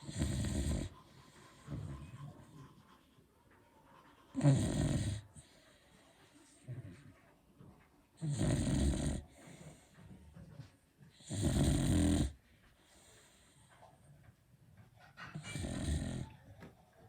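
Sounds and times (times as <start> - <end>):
dog snoring loudly: 0.0 - 1.0, 4.3 - 5.4, 8.2 - 9.3, 11.2 - 12.4, 15.4 - 16.3
faint dog breathing: 0.0 - 16.6.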